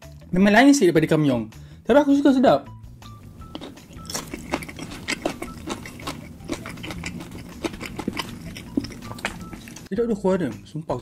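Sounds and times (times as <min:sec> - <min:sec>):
wet chewing sounds: 0:03.3 - 0:09.9.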